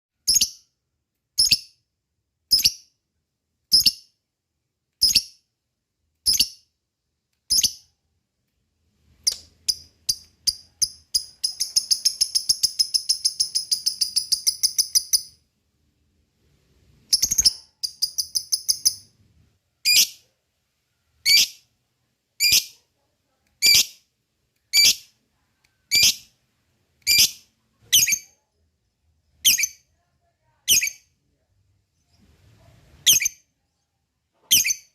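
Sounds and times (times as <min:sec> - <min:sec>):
lovebird chirping and trilling: 0:00.2 - 0:00.6, 0:01.4 - 0:01.8, 0:02.5 - 0:02.9, 0:03.7 - 0:04.1, 0:05.0 - 0:05.4, 0:06.2 - 0:06.6, 0:07.5 - 0:07.9, 0:09.2 - 0:15.4, 0:17.1 - 0:19.2, 0:19.8 - 0:20.2, 0:21.2 - 0:21.6, 0:22.4 - 0:22.8, 0:23.6 - 0:24.0, 0:24.7 - 0:25.1, 0:25.9 - 0:26.4, 0:27.0 - 0:28.4, 0:29.4 - 0:29.9, 0:30.7 - 0:31.1, 0:33.0 - 0:33.5, 0:34.4 - 0:34.9.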